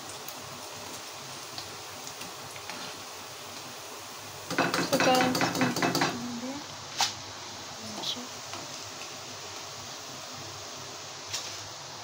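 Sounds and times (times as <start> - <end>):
oil sizzling in frying pan: 0.0 - 12.0.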